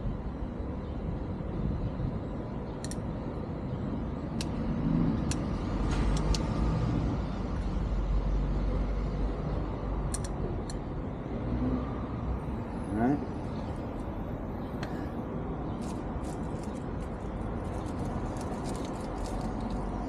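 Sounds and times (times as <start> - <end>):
small parts clicking: 10.1 - 10.8.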